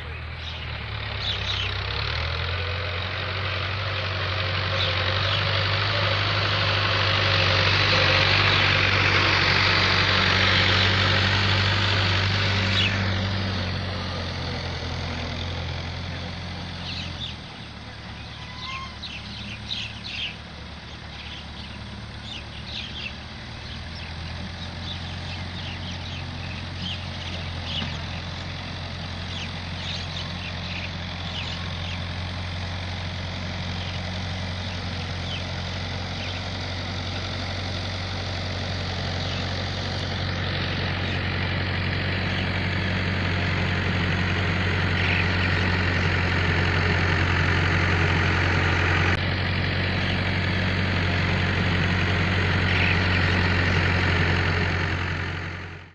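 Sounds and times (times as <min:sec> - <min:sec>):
bird chirps: 0:00.0 - 0:03.0, 0:16.1 - 0:32.4, 0:33.6 - 0:36.5, 0:39.1 - 0:41.4, 0:44.8 - 0:46.0, 0:52.5 - 0:53.5
tractor diesel engine running: 0:00.0 - 0:55.9.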